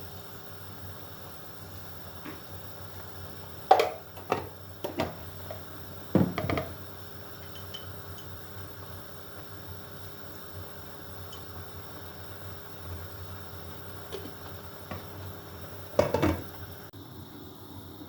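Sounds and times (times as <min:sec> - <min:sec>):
steady background hiss: 0:00.0 - 0:18.0
kitchenware knocking and clattering: 0:03.7 - 0:06.8, 0:16.0 - 0:16.5.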